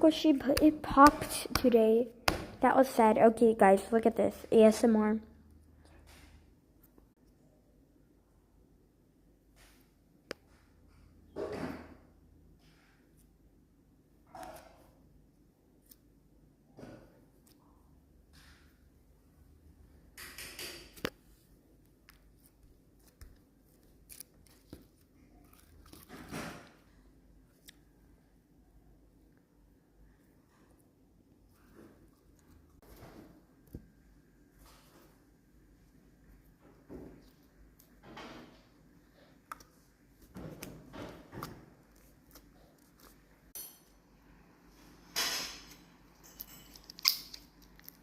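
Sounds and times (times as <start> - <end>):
slime squishing: 22.0 - 26.9.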